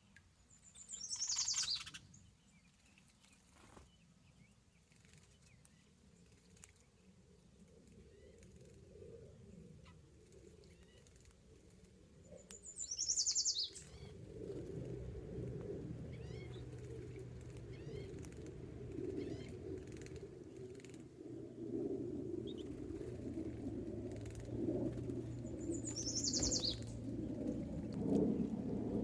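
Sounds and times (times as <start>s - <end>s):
bird chirps: 0.5s - 3.0s, 12.4s - 14.1s, 16.1s - 18.4s, 25.2s - 27.4s
bird trill: 0.6s - 2.1s, 12.6s - 14.1s, 25.4s - 27.0s
low rumble and hum: 13.6s - 29.0s.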